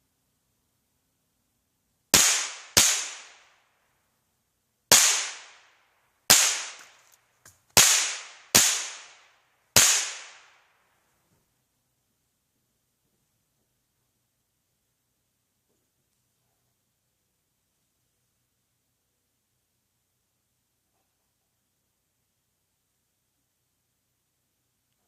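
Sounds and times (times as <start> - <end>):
rifle shots with echo: 2.2 - 3.6, 4.9 - 6.9, 7.8 - 10.7.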